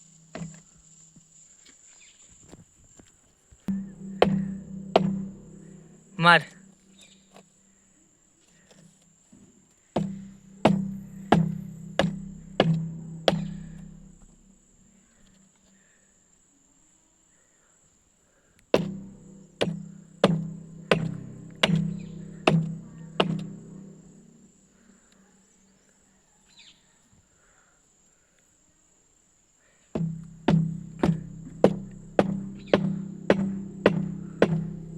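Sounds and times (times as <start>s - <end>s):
ringing hammer blows: 3.7s - 6.8s, 10.0s - 14.5s, 18.8s - 24.3s, 30.0s - 34.9s.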